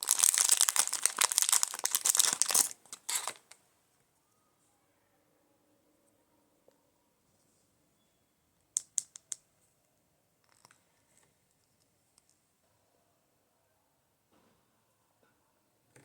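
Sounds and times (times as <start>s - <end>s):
packaging rustling: 0.0s - 3.6s.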